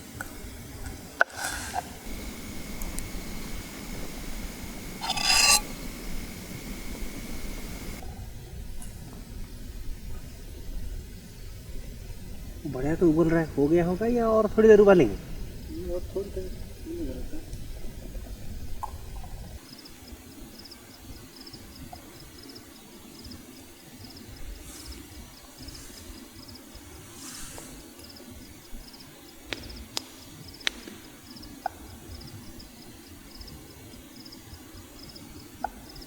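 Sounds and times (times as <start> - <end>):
pot of water boiling: 0.0 - 8.1
cricket chirping: 1.4 - 8.0, 18.6 - 36.0.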